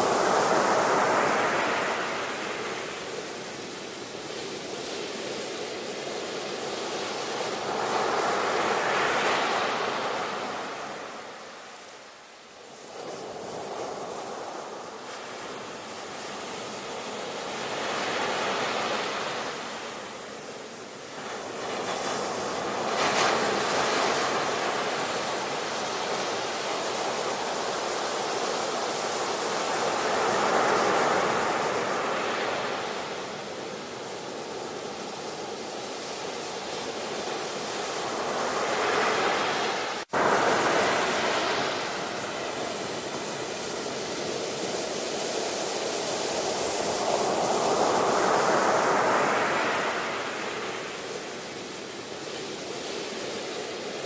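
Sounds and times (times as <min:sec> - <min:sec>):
ocean waves breaking: 0:21.0 - 0:54.0.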